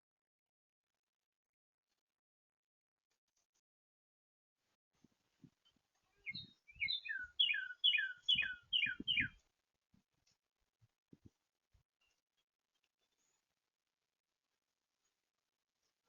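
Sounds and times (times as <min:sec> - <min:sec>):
songbird whistling descending notes: 0:06.3 - 0:09.4.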